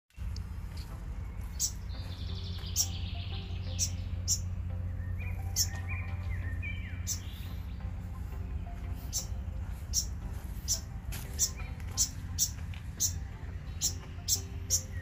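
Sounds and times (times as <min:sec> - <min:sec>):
buzzy bird chatter: 0:01.2 - 0:08.3, 0:09.0 - 0:15.0
sharp high bird chips: 0:01.5 - 0:07.5, 0:09.0 - 0:15.0.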